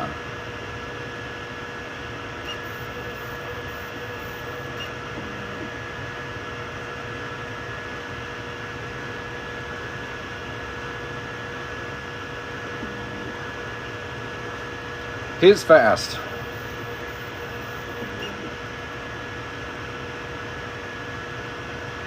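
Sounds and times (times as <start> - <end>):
printers mechanical hum: 0.0 - 22.0
low whining tone: 2.5 - 5.8, 12.6 - 13.6
high whining tone: 16.1 - 18.6.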